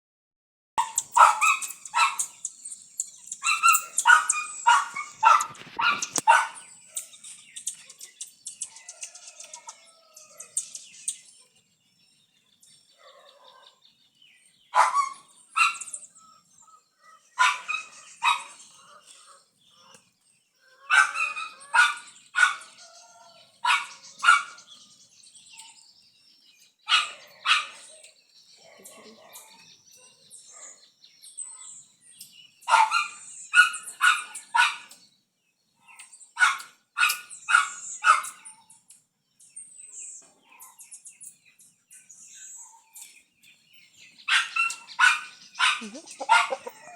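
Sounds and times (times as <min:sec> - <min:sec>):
dog barking: 0:00.8 - 0:02.3, 0:03.4 - 0:06.7, 0:13.0 - 0:13.8, 0:14.8 - 0:15.9, 0:17.0 - 0:18.6, 0:20.8 - 0:24.6, 0:26.9 - 0:28.0, 0:28.6 - 0:30.8, 0:32.7 - 0:35.0, 0:36.4 - 0:38.5, 0:44.3 - 0:46.9
birds chirping faintly: 0:00.8 - 0:46.9.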